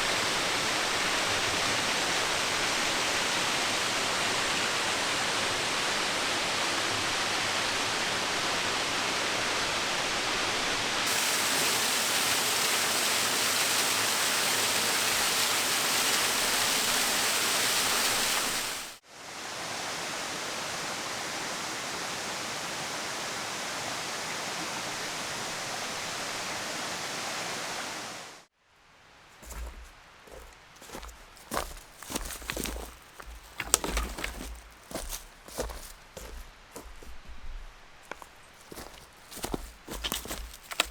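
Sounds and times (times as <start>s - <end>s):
waterfall rushing: 0.0s - 28.5s.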